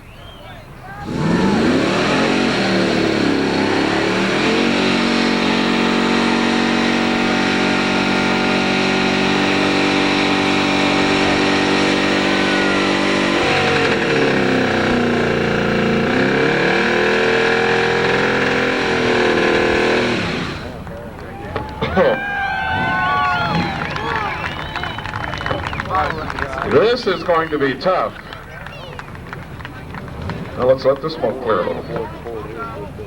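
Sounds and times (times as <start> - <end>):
truck engine revving hard: 1.0 - 20.9, 21.9 - 27.2.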